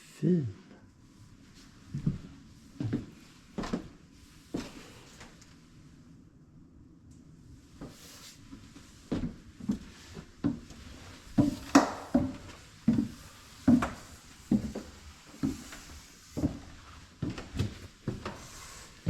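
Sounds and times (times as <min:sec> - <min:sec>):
footsteps on wooden floor: 0:01.9 - 0:05.3, 0:09.1 - 0:18.8.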